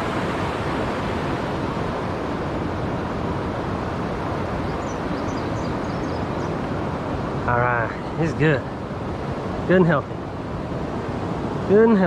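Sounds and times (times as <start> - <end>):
waterfall rushing: 0.0 - 4.5.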